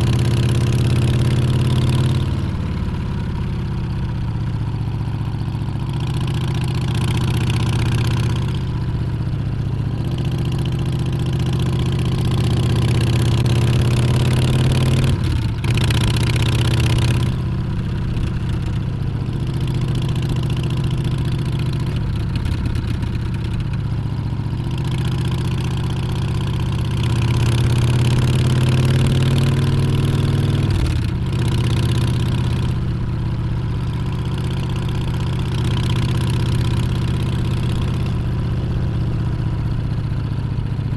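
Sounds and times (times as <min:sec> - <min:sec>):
motorcycle engine revving: 0:10.0 - 0:23.9, 0:24.6 - 0:32.8.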